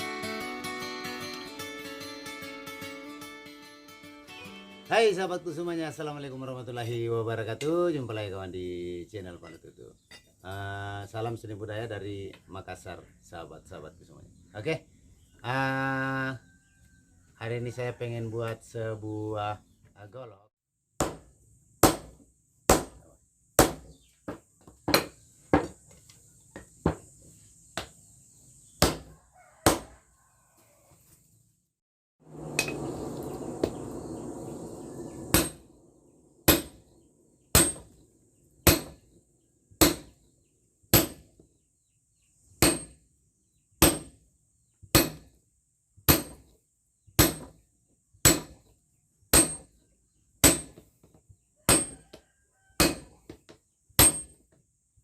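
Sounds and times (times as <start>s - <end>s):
rushing noise: 32.2s - 36.9s
hammer striking steel on anvil: 32.4s - 32.9s, 35.3s - 35.6s, 36.5s - 36.8s, 37.5s - 38.0s, 38.6s - 39.0s, 39.8s - 40.1s, 41.0s - 41.2s, 48.2s - 48.6s, 49.3s - 49.6s.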